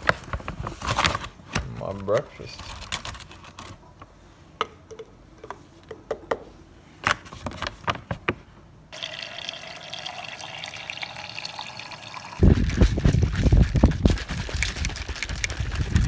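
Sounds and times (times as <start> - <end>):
liquid pouring into a cup: 9.0 - 13.2.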